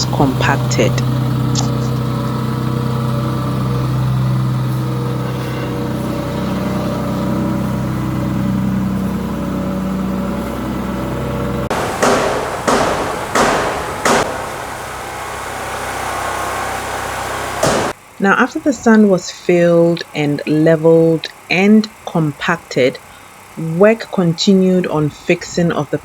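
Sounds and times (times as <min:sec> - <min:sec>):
sand compactor engine running: 0:00.0 - 0:18.2.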